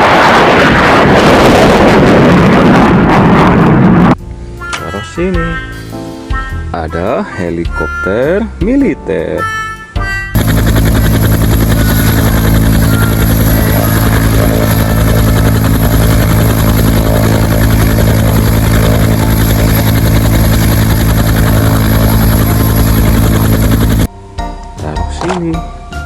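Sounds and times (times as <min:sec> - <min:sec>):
helicopter rotor and engine: 0:10.4 - 0:24.1.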